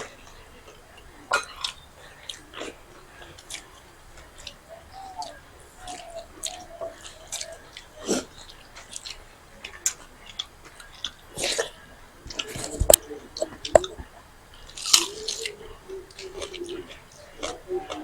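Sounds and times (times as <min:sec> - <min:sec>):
wet chewing and crunching: 0:00.0 - 0:18.0
sharp knocks: 0:12.6 - 0:14.1.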